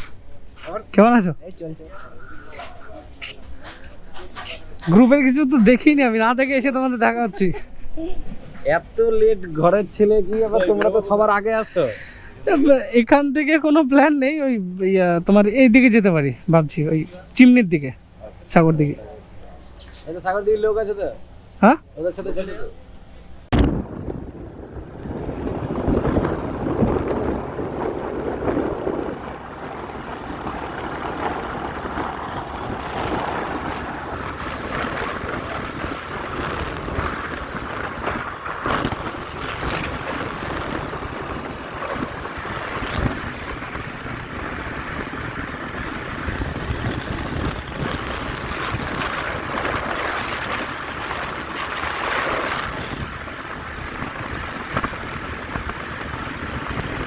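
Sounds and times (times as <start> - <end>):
road noise: 15.2 - 57.0
wind rushing over microphone: 23.4 - 57.0
motorcycle engine: 23.5 - 57.0.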